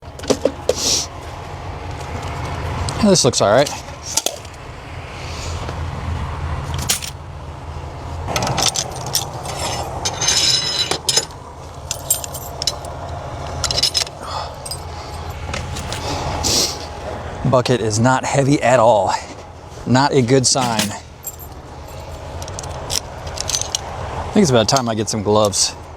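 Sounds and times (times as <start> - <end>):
steady low hum: 0.0 - 25.9
keys jangling: 6.8 - 7.2, 8.5 - 16.2, 20.6 - 23.8
metal clicks and clinks: 6.8 - 7.2, 8.4 - 11.3, 11.9 - 16.0, 20.6 - 23.9
short ringing rattle: 20.6 - 23.8.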